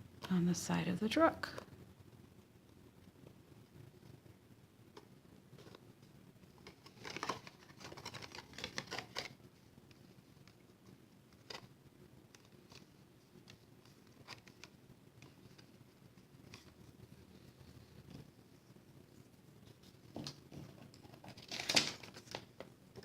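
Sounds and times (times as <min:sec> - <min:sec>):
paper and card rustling: 0:06.6 - 0:10.6, 0:11.3 - 0:11.7, 0:12.3 - 0:18.3, 0:19.6 - 0:22.7.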